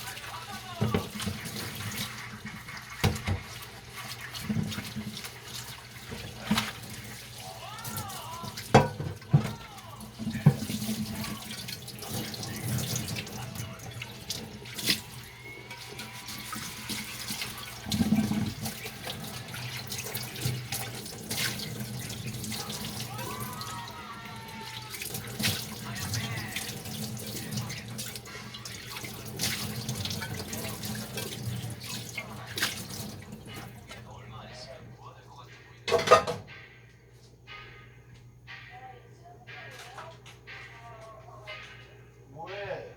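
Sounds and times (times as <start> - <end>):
tap running into a sink: 0.7 - 7.1, 8.4 - 15.2, 15.8 - 23.0
dishes clinking: 0.8 - 5.2, 7.9 - 15.0, 35.9 - 36.8.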